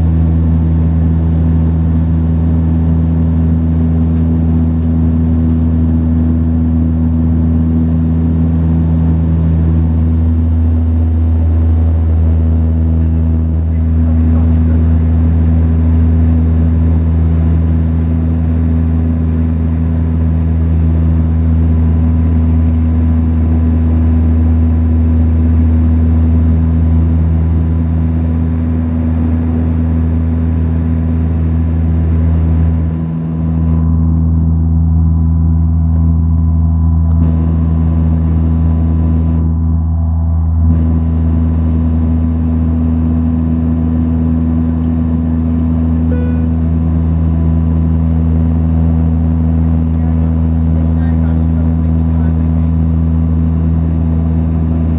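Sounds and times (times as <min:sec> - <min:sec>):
turboprop engines droning in flight: 0:00.0 - 0:54.9.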